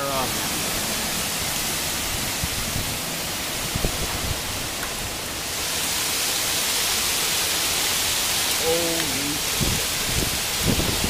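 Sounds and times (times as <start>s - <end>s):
storm wind rushing: 0.3s - 5.6s, 9.4s - 11.0s.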